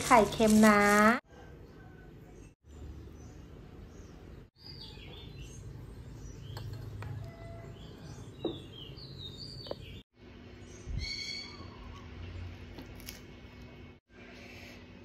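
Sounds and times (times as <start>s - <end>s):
birds chirping: 2.3s - 12.4s.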